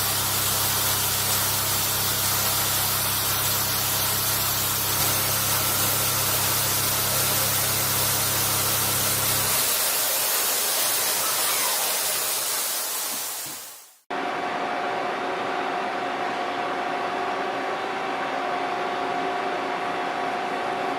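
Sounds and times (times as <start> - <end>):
cutting machine hissing: 0.0 - 14.1.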